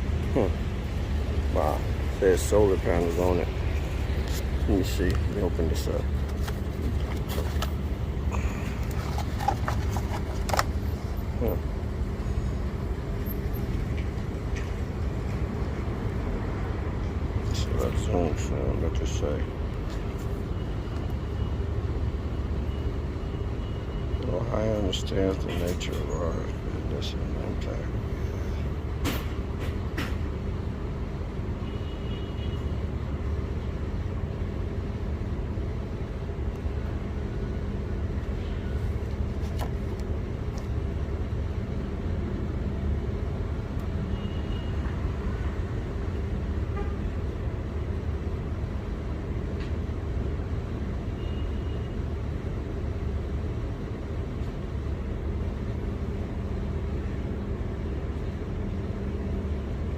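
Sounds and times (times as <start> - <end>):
vehicle rumble and hum: 0.0 - 59.9.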